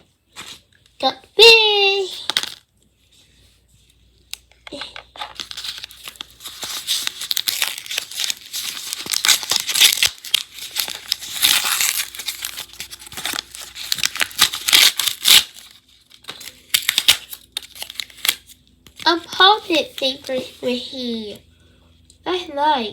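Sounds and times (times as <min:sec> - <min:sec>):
bag tearing and crinkling: 0:05.4 - 0:18.6.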